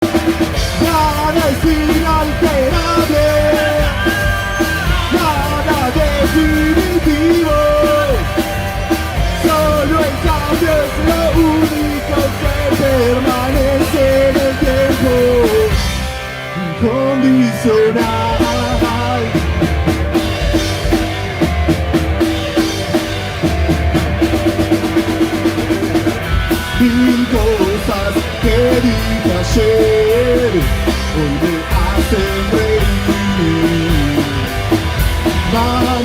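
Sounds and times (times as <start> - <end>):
punk rock band playing: 0.0 - 36.0.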